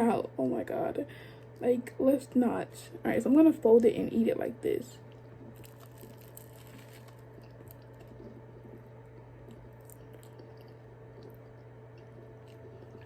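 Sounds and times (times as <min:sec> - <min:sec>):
steady low hum: 0:00.0 - 0:13.0
person chewing: 0:05.0 - 0:13.0.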